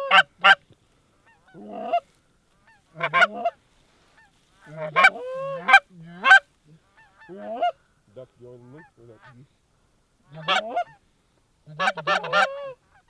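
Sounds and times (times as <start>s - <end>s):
goose honking: 0.0s - 0.6s, 1.3s - 3.6s, 4.2s - 6.4s, 10.3s - 11.0s, 11.7s - 13.0s.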